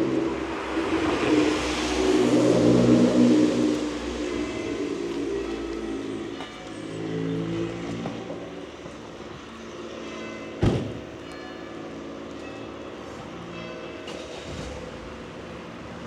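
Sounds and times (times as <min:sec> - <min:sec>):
vehicle passing on wet street: 0:00.0 - 0:08.0.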